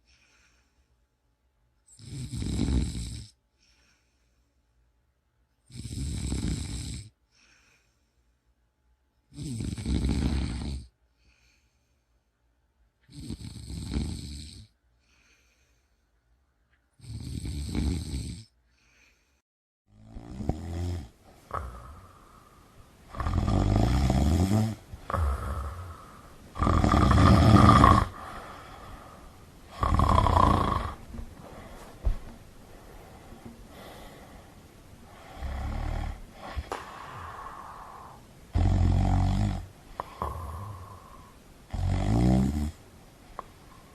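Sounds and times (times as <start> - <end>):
person snoring: 1.9 - 3.4, 5.7 - 7.1, 9.3 - 10.9, 13.1 - 14.7, 17.0 - 18.5, 19.9 - 42.8
steady background hiss: 20.1 - 43.9.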